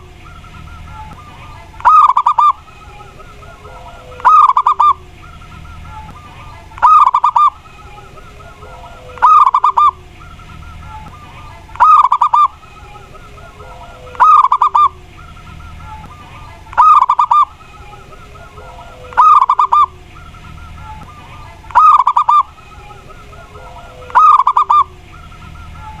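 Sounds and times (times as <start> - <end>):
dove cooing: 0.0 - 26.0.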